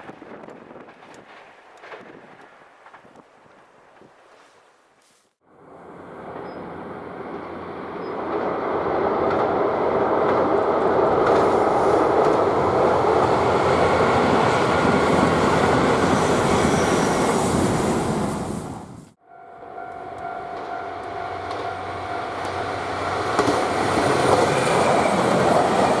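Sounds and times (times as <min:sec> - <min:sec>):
diesel train passing: 0:05.5 - 0:26.0.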